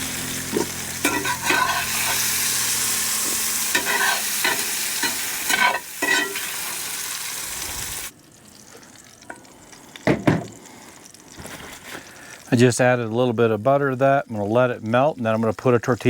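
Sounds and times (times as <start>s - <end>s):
vegetables sizzling in a skillet: 0.0s - 8.1s
utensil scraping a pan: 0.5s - 6.9s.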